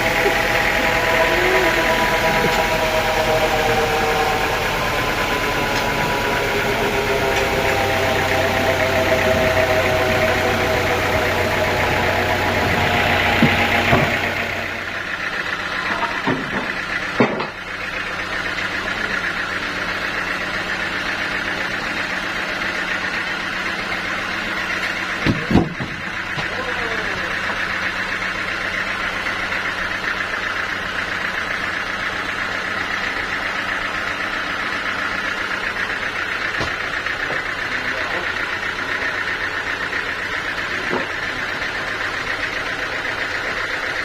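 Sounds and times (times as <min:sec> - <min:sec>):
saw cutting through log: 0:00.0 - 0:16.8.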